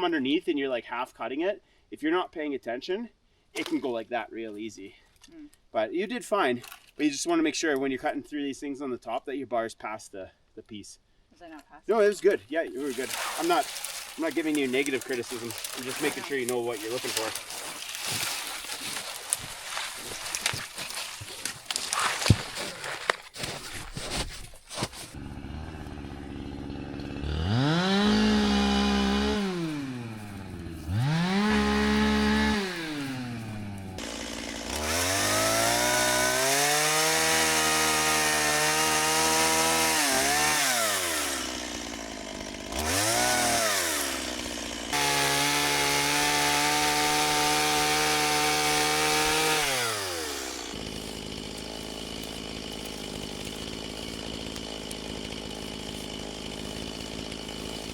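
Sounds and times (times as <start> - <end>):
chainsaw cutting timber: 12.8 - 57.9.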